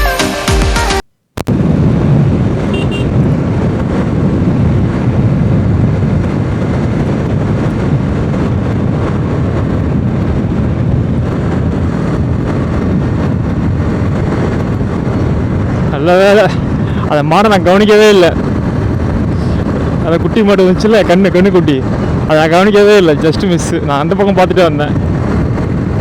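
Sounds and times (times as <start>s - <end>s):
road noise: 1.3s - 26.0s
motorcycle engine: 1.4s - 16.0s
wind rushing on microphone: 1.4s - 26.0s.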